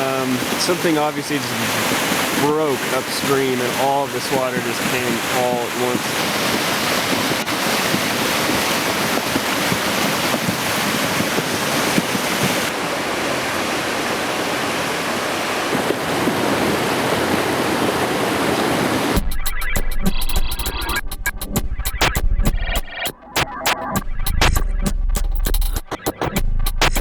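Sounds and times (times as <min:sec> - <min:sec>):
river water rushing: 0:00.0 - 0:19.2
electronic music with steady beat: 0:19.2 - 0:27.0.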